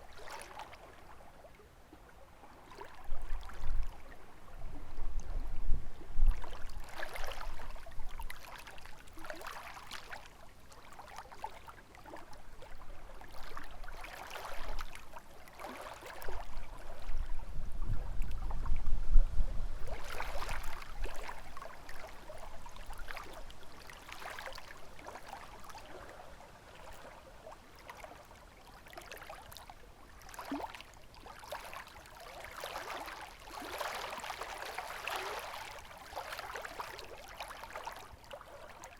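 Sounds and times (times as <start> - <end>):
waves lapping against shore: 0.0 - 18.7, 19.7 - 38.9
wind rumbling on microphone: 3.0 - 8.4, 16.2 - 23.7.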